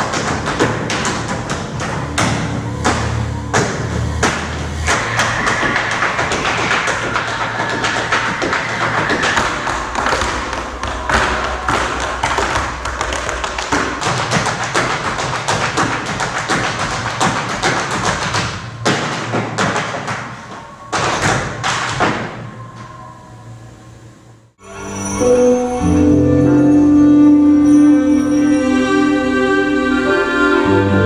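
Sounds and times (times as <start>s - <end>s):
tap shoes striking floor: 0.0s - 22.4s
percussion music: 0.0s - 22.6s.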